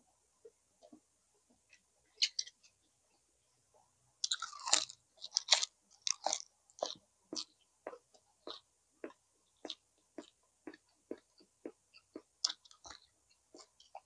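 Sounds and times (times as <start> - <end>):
person chewing and biting food: 4.2 - 8.6, 12.4 - 14.0.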